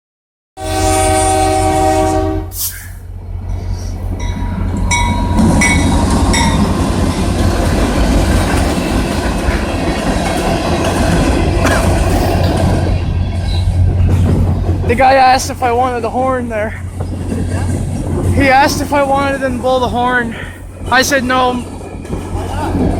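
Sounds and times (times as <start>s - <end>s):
train air horn: 0.6s - 3.0s
train wheels rumbling on rails: 0.6s - 22.9s
short high ringing tones: 4.2s - 6.6s.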